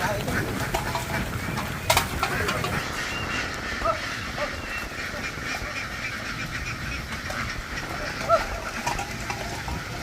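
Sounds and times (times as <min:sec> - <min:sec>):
ducks quacking: 0:00.0 - 0:10.0
low rumble: 0:00.0 - 0:10.0.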